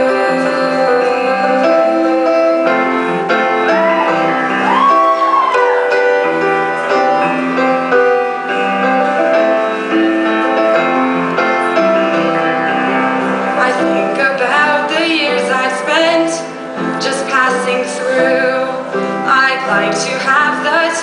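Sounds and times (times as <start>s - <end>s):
solo piano ballad: 0.0s - 21.0s.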